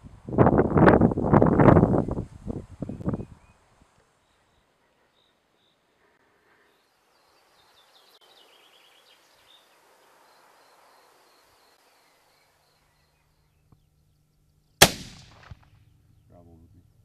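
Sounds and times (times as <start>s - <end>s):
small birds chirping: 2.8s - 15.0s, 15.7s - 17.0s.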